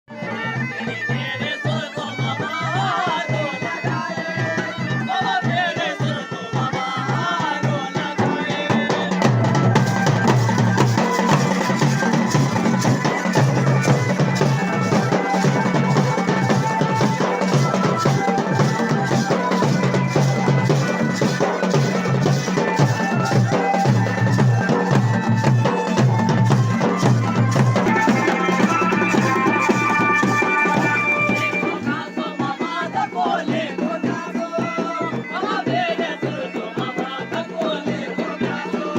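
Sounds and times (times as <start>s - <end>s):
loud fast drumming: 0.1s - 38.9s
reed wind melody: 9.4s - 32.4s.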